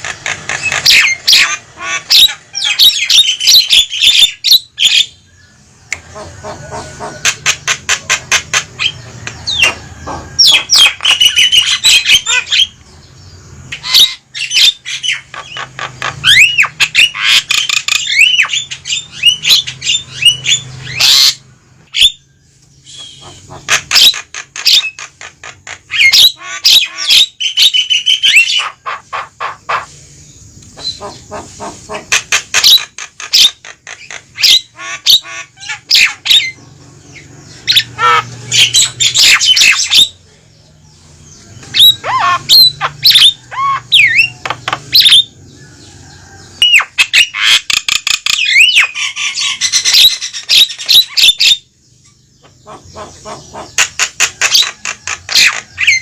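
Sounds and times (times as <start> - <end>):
mynas squawking and whistling: 22.8 - 25.0, 25.6 - 30.0, 41.7 - 45.3.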